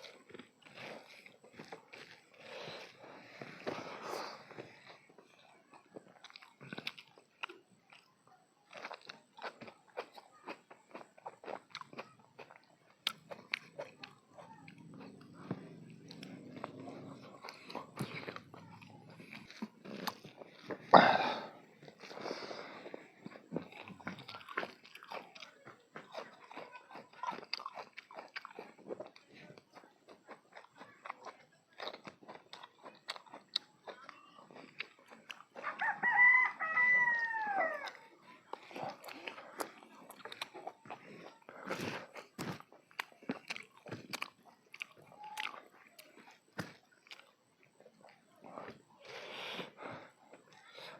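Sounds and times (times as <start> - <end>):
chewing crunchy food: 0.0 - 50.9
rooster crowing: 35.6 - 38.0.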